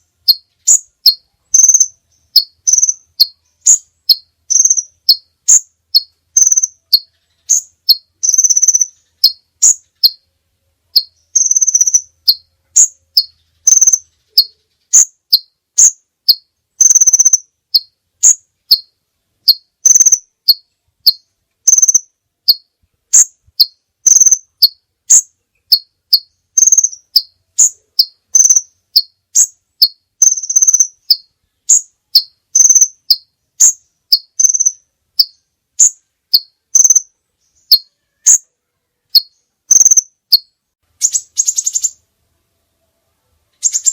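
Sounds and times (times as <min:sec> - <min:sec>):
high-pitched bird chirping: 0:00.0 - 0:42.0, 0:43.5 - 0:43.9.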